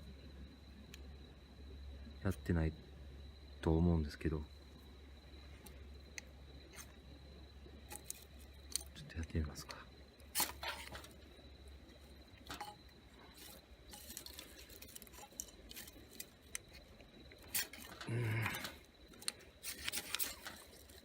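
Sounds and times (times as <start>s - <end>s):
metallic scrapes and clinks: 10.4s - 11.2s, 12.4s - 16.4s, 17.4s - 18.8s, 19.6s - 21.0s.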